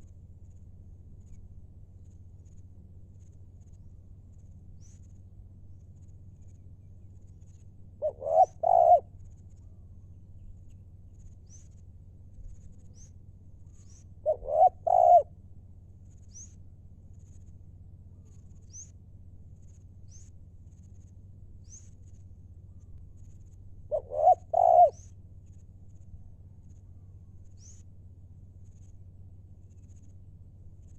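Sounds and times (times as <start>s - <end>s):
small bird chirps: 3.2s - 5.2s, 5.8s - 15.3s, 16.0s - 17.5s, 18.1s - 19.0s, 19.6s - 27.9s
dove cooing: 8.0s - 9.2s, 14.2s - 15.4s, 23.9s - 25.0s.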